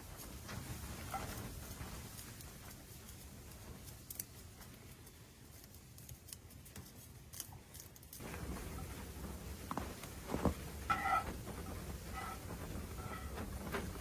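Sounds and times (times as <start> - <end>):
faint clicks and handling noises: 0.2 - 8.5.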